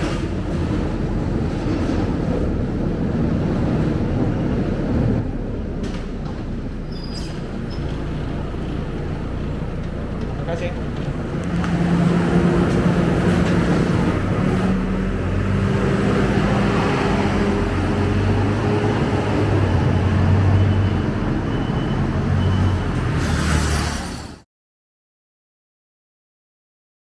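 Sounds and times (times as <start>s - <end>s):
bus diesel engine running: 0.0s - 23.2s
road noise: 0.0s - 24.5s.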